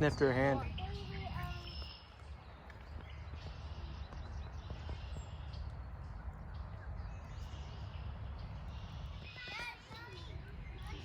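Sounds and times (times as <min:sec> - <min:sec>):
faint high bird chirp: 0:00.1 - 0:11.0.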